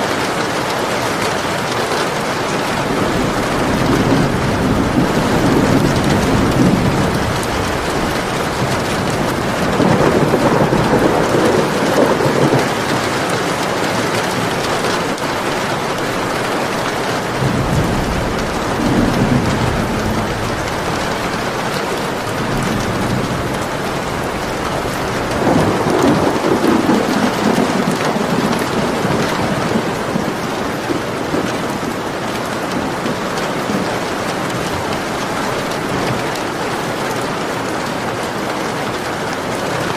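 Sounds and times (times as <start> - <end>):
heavy rain: 0.0 - 39.9
low rolling thunder: 2.6 - 38.1.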